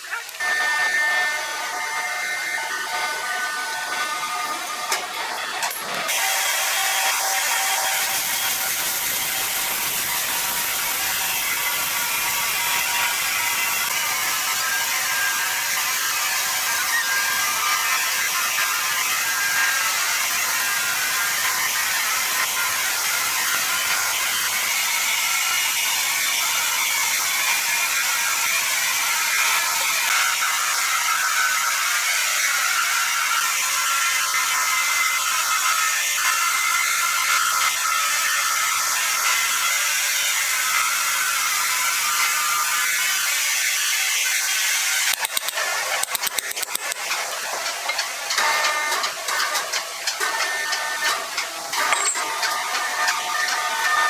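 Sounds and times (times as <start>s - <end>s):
saw cutting through timber: 0.0s - 54.0s
sawmill machinery running: 0.0s - 54.0s.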